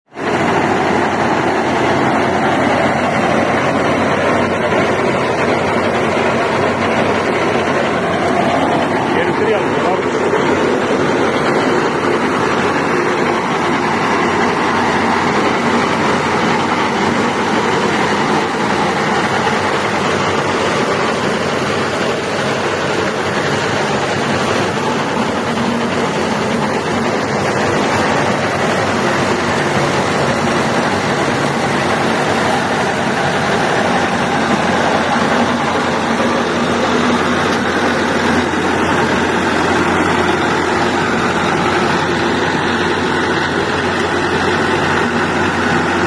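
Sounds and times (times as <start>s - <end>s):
drilling rig machine noise: 0.0s - 46.0s.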